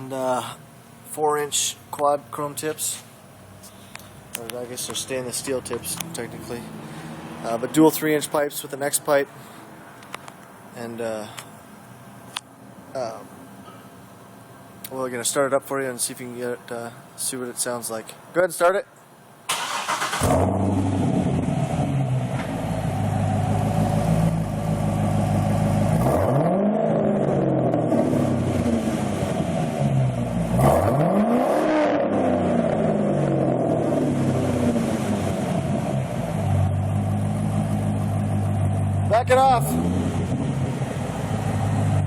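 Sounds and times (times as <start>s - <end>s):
car engine revving: 19.5s - 42.0s
car engine starting and idling: 19.5s - 42.0s.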